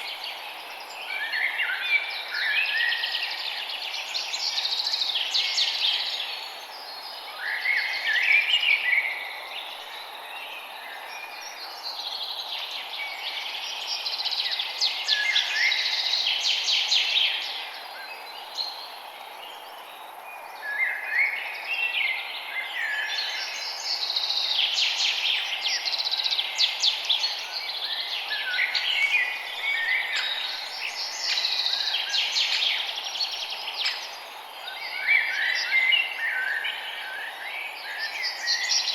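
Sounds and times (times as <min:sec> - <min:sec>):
steady background hiss: 0:00.0 - 0:38.9
birds chirping and trilling: 0:20.6 - 0:38.9.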